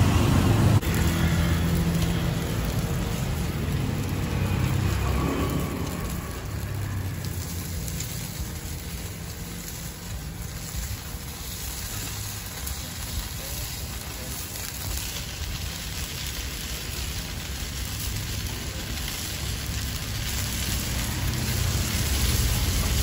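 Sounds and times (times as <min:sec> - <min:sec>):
low rumble: 0:00.0 - 0:12.0
batter sizzling in a pan: 0:00.1 - 0:23.0.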